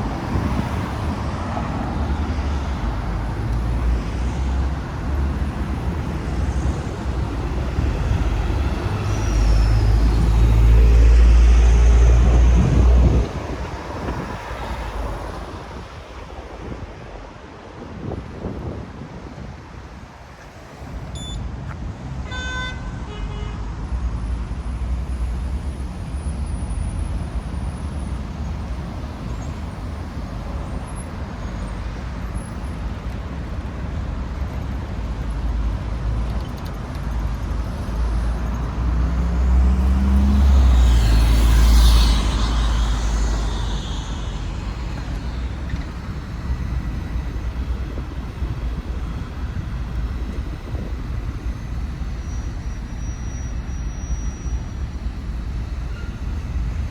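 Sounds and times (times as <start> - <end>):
city street traffic: 0.0 - 56.9
short beep: 21.1 - 21.4
vehicle passing close: 37.7 - 51.7.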